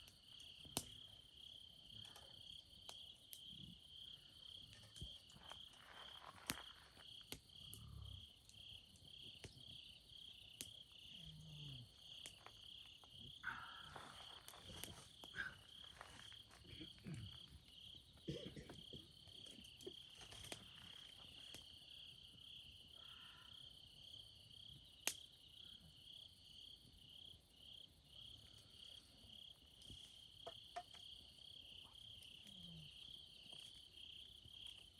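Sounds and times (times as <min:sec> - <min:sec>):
insects chirping: 0:00.0 - 0:34.9.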